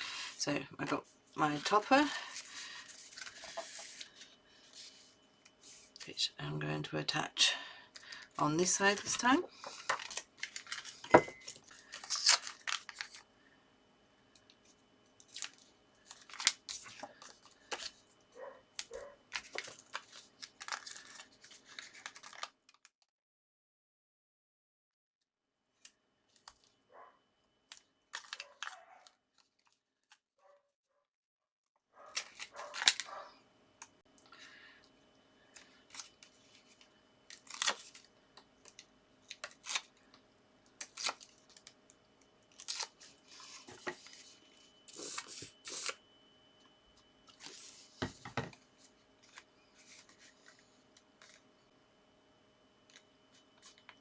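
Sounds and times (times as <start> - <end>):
paper and card rustling: 0.0 - 6.0, 8.0 - 13.3, 14.6 - 22.6, 32.0 - 33.3, 35.5 - 40.1, 42.5 - 46.0, 47.3 - 51.4.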